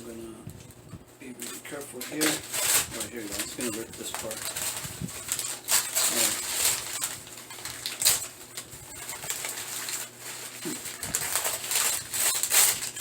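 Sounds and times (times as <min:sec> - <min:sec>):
packing wrap crinkling: 0:00.0 - 0:13.0.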